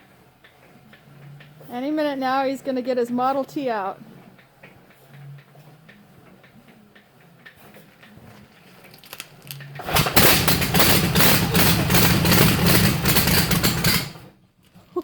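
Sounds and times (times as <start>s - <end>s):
engine starting and running rough: 7.4s - 14.4s.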